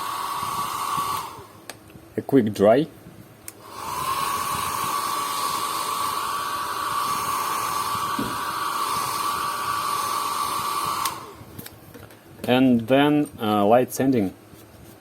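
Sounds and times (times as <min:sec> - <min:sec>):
hot-air dryer running: 0:00.0 - 0:01.7, 0:03.5 - 0:11.7.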